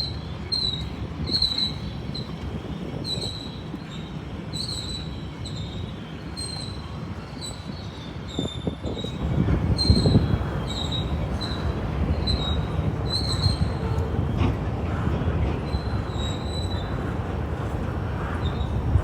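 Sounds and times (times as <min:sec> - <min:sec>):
train rumbling past: 0:08.2 - 0:19.0
wheel squeals: 0:08.3 - 0:14.4.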